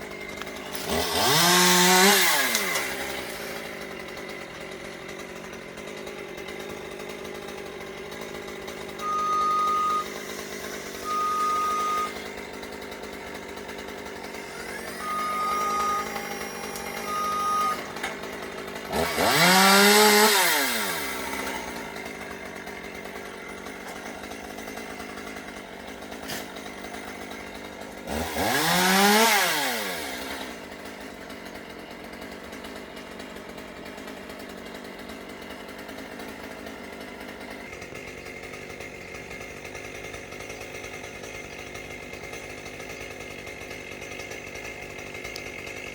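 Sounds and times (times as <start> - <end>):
chainsaw idling and revving: 0.0 - 45.9
short high beeps: 9.0 - 10.1, 11.0 - 12.2, 15.0 - 17.8.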